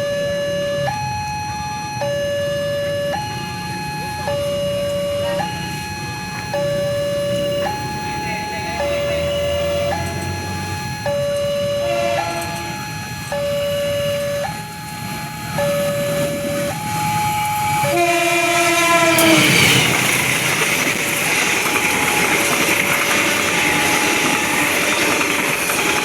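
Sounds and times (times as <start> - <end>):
two-tone warning alarm: 0.0 - 26.0
train running past: 2.1 - 26.0
train horn: 11.8 - 12.8, 17.8 - 20.2.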